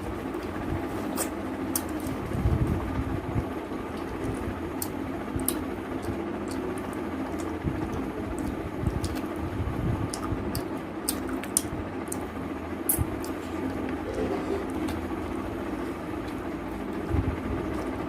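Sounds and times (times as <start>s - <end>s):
low background hum: 0.0s - 18.0s
person chewing and smacking: 0.2s - 2.3s, 3.8s - 18.0s.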